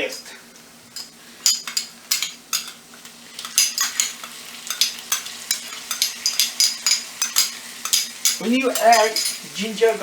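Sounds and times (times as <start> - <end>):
onions sizzling in hot oil: 2.0 - 10.0.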